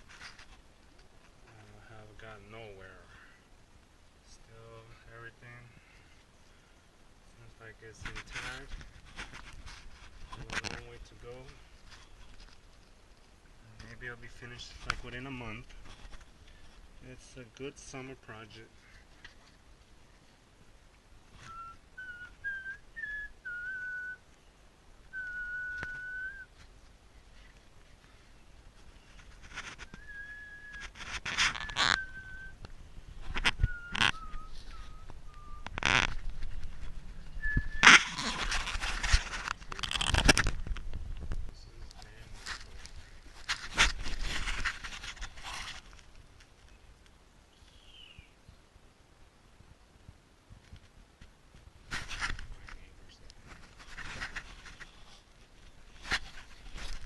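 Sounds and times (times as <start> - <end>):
scraping and rustling: 0.0 - 1.8, 7.8 - 20.4, 25.7 - 46.8, 51.8 - 57.0
person whistling a tune: 21.5 - 24.2, 25.1 - 26.5, 29.9 - 30.9, 31.6 - 32.5, 33.6 - 35.7, 37.4 - 37.9.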